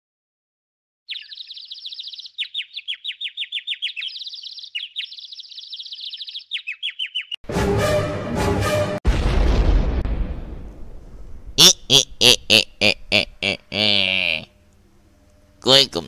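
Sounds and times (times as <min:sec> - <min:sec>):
bird chirping: 0:01.1 - 0:07.4
loud music: 0:07.4 - 0:09.0.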